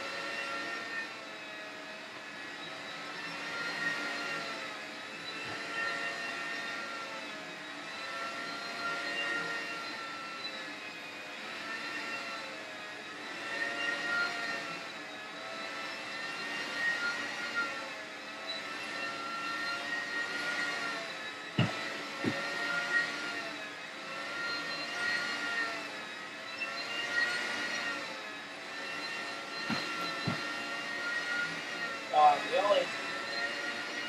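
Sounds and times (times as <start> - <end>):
floor scrubber motor whine: 0.0 - 34.0
sharp knocks: 21.6 - 22.4, 29.6 - 30.5.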